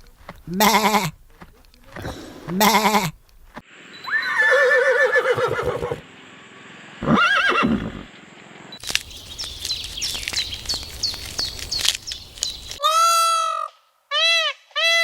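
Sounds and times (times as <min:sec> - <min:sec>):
animal bleating: 0:00.0 - 0:03.2.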